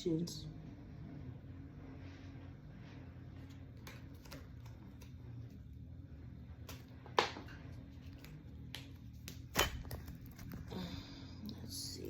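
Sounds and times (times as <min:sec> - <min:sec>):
low room hum: 0:00.0 - 0:12.0
cards being shuffled: 0:03.4 - 0:05.6, 0:06.6 - 0:10.7.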